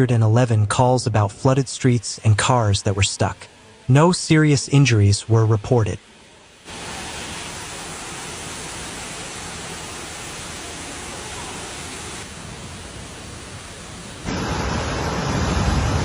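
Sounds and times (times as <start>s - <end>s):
storm water rushing: 6.6s - 16.0s.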